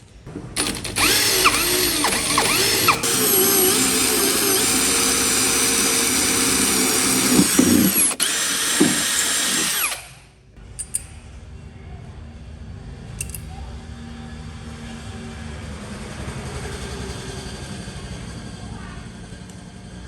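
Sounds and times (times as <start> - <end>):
handheld power tool running: 0.6 - 10.2.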